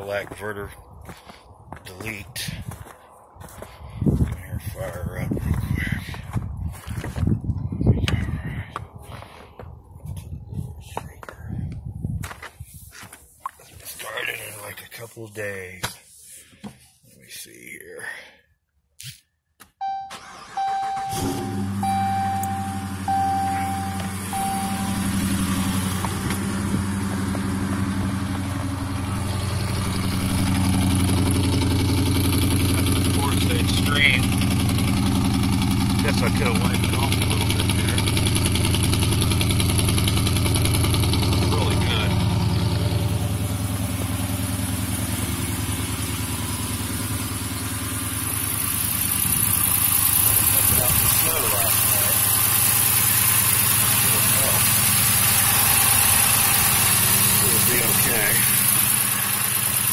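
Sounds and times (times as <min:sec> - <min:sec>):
car warning chime: 0:19.8 - 0:26.2
car engine idling: 0:19.8 - 0:59.9.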